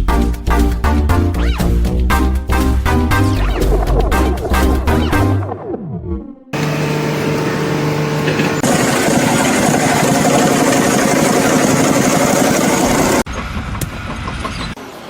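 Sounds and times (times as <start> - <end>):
engine running: 6.6 - 14.3.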